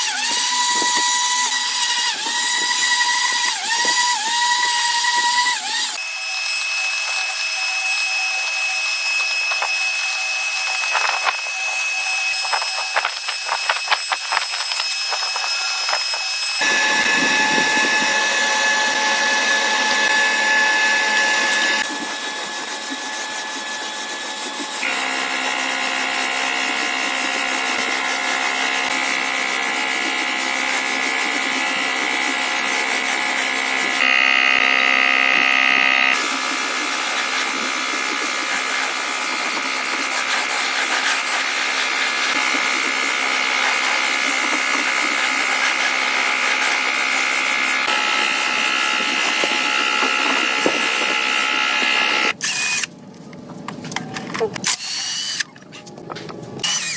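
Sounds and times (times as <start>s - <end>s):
power tools whining: 0.0s - 52.9s, 56.6s - 56.9s.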